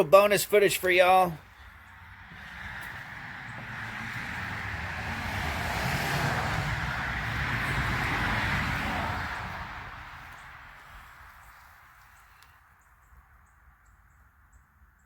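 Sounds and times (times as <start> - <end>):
vehicle passing by: 1.4 - 12.1.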